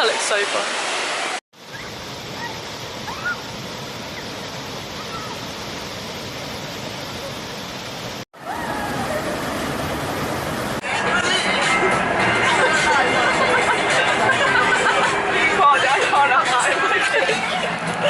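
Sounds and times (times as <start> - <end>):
creek and waterfall rushing: 0.0 - 18.0
distant voices: 8.4 - 16.2.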